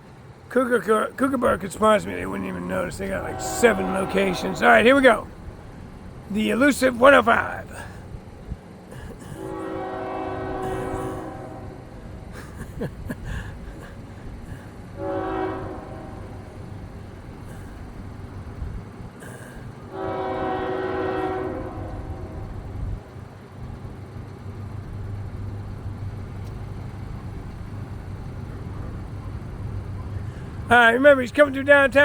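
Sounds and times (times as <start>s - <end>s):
locomotive engine humming: 0.0s - 32.0s
train horn blasts: 2.3s - 5.5s, 9.4s - 12.1s, 15.0s - 16.7s, 19.9s - 23.0s.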